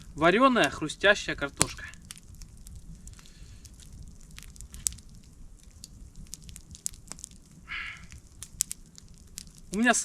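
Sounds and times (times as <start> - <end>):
campfire crackling: 0.0 - 10.0.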